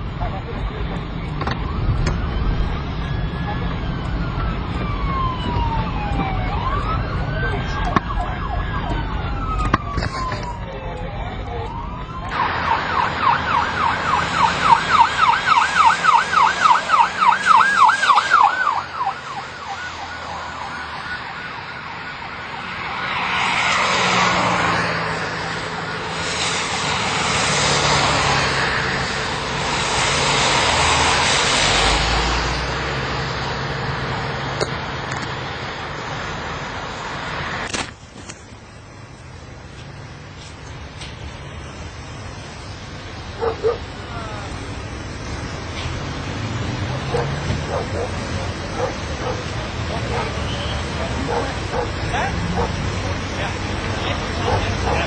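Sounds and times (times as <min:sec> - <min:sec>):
police sirens wailing: 0:00.0 - 0:55.0
vehicles passing: 0:00.0 - 0:55.0
siren fast yelp: 0:01.6 - 0:29.2.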